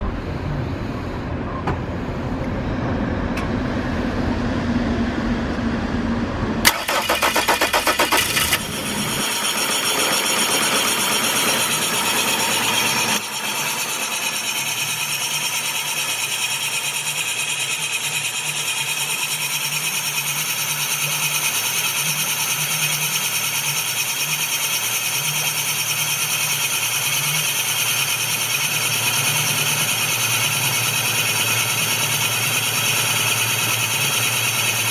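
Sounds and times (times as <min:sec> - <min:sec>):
steady rumbling noise: 0:00.0 - 0:13.2
boat engine starter cranking: 0:06.6 - 0:10.4.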